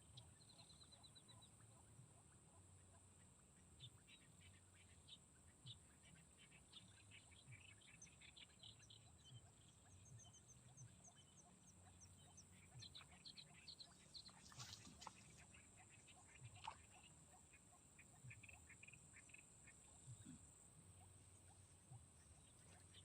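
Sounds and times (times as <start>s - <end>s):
birdsong chirps: 0.0s - 23.0s.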